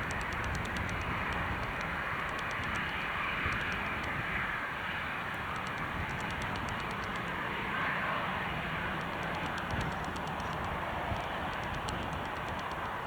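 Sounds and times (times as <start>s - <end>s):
wind on microphone: 8.7s - 13.0s.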